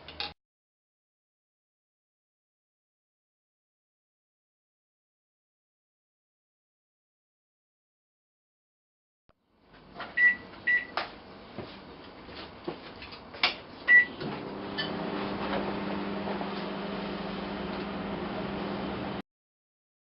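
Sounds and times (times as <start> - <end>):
microwave oven humming: 13.8 - 19.2.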